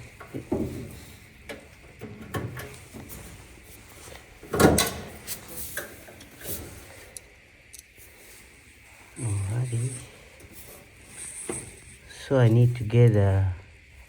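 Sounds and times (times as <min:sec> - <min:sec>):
dryer parts clunking and scraping: 0:00.0 - 0:07.2, 0:10.0 - 0:12.8.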